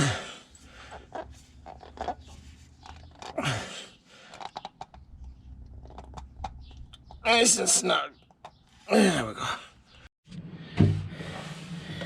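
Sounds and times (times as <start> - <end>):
oil filter scraping and clicking: 0.5 - 3.4, 4.2 - 7.2.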